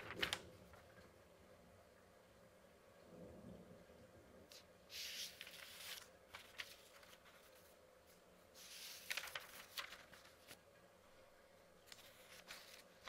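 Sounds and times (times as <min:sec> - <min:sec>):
paper pages turning: 0:00.0 - 0:00.8, 0:04.5 - 0:10.6, 0:11.8 - 0:13.0.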